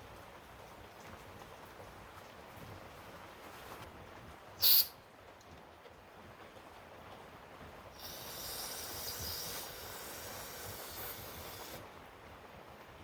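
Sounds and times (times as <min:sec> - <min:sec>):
steady hiss: 0:02.4 - 0:05.4, 0:06.0 - 0:13.0.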